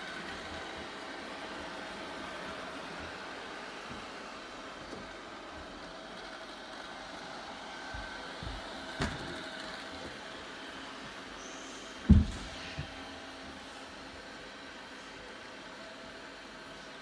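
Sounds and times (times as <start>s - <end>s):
light knocks: 12.1s - 12.9s.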